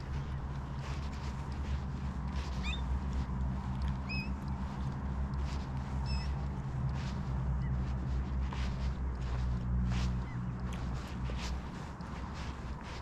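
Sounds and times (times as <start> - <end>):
steady low hum: 0.0 - 13.0
squealing bird calls: 2.6 - 2.9, 4.0 - 4.4, 6.0 - 6.4.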